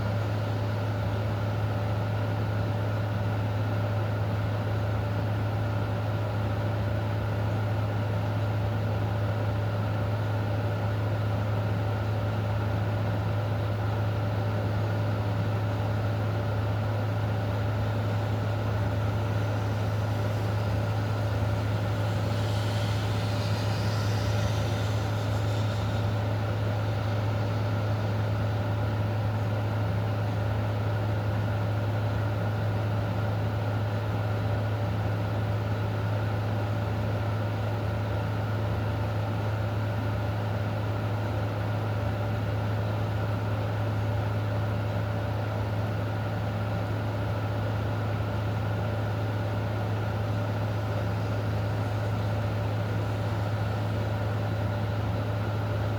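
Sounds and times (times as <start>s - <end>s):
low mechanical hum: 0.0s - 55.9s
even hiss: 17.8s - 28.6s, 49.8s - 55.9s.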